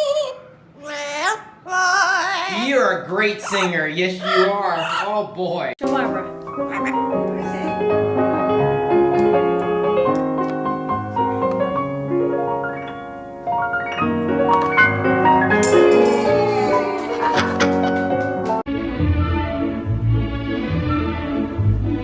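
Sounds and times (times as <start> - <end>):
piano music: 5.8 - 22.0.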